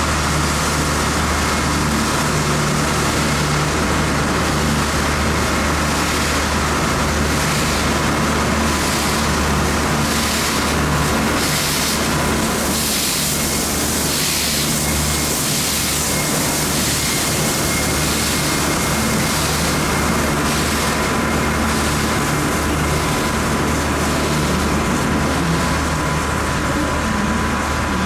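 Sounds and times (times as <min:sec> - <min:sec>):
high whine: 0:00.0 - 0:28.0
locomotive engine hum: 0:00.0 - 0:28.0
hiss: 0:10.1 - 0:25.7.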